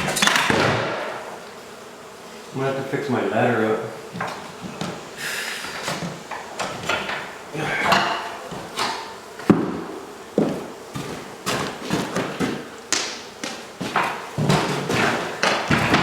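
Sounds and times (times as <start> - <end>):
irregular knocks and thumps: 7.9 - 16.0.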